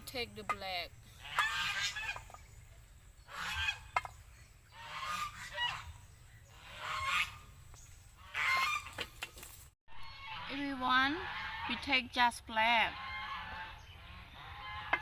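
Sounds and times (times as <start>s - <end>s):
geese honking: 1.2s - 2.4s, 3.3s - 4.1s, 4.7s - 7.5s, 8.2s - 9.0s, 10.0s - 12.0s, 12.7s - 15.0s.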